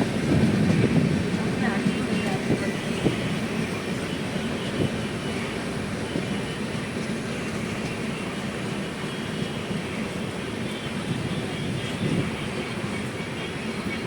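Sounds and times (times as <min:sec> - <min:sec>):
train rumble from inside coach: 0:00.0 - 0:14.0.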